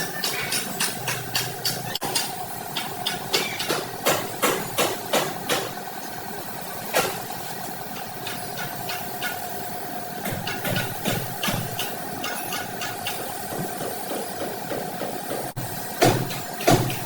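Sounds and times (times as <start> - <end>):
hammer on sheet metal: 13.8 - 17.0.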